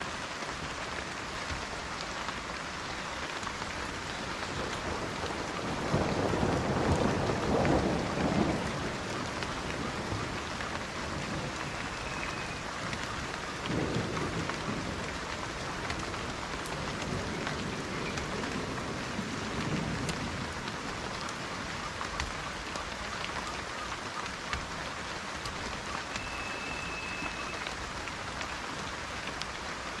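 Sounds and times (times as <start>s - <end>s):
steady rain: 0.0s - 30.0s
thunder rolling: 4.2s - 21.2s.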